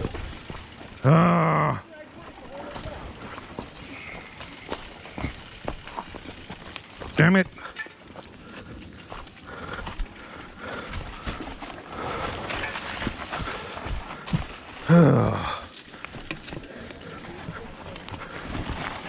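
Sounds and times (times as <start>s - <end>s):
mountain bike rattling over rocks: 0.0s - 19.0s
person groaning: 1.0s - 1.8s, 14.8s - 15.7s.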